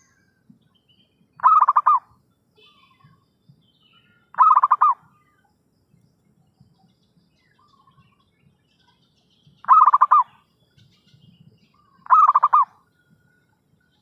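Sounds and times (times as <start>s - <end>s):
faint bird chirping: 0.0s - 14.0s
dove cooing: 1.4s - 2.0s, 4.3s - 5.0s, 9.6s - 10.4s, 12.0s - 12.8s.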